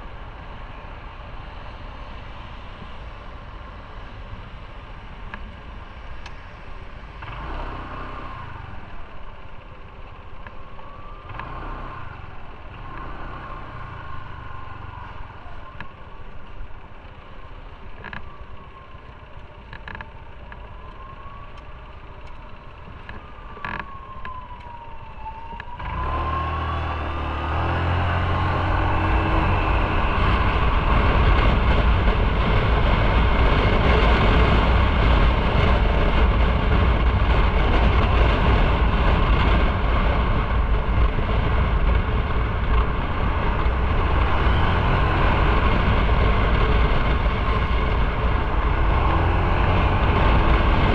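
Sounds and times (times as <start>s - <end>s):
motorcycle engine rumble: 0.0s - 50.9s
wind noise: 22.8s - 50.9s.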